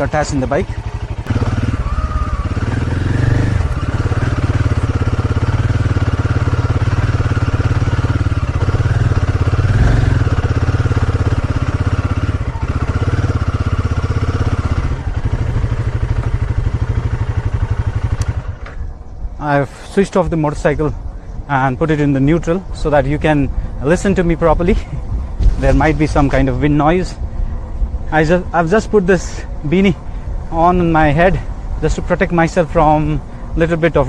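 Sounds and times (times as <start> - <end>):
motorcycle engine running: 0.0 - 19.4.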